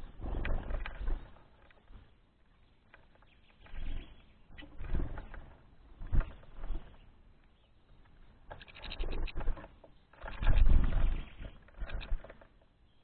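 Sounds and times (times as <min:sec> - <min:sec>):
short bird sounds: 0:00.0 - 0:05.5.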